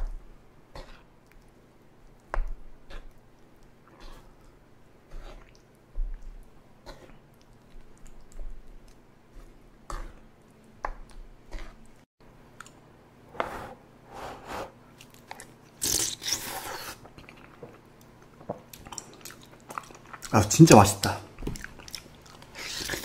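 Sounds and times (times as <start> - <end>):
wet chewing: 0.8 - 12.0, 15.0 - 20.4, 21.3 - 23.0.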